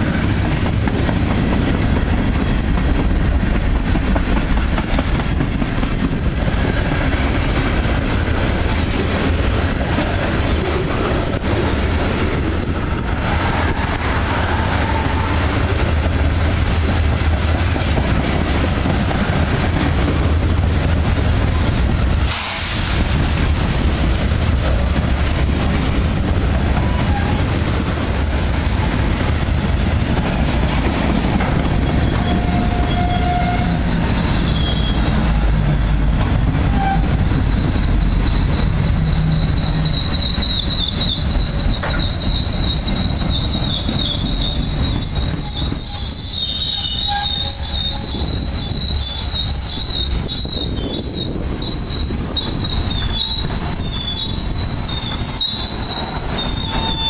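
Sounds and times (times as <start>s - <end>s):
freight train wheels rumbling: 0.0s - 57.0s
wheel squeal: 26.7s - 30.5s, 31.6s - 57.0s.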